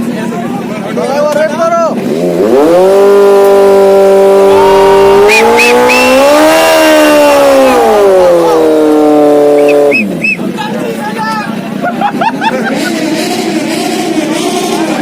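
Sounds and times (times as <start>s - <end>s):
motorcycle engine revving: 1.9s - 10.3s, 12.6s - 15.0s.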